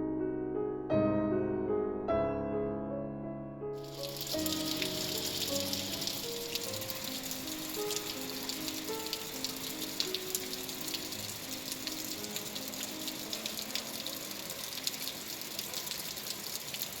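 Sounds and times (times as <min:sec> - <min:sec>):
soft background music: 0:00.0 - 0:15.4
raindrops ticking close by: 0:03.8 - 0:17.0
steady rain: 0:03.8 - 0:17.0.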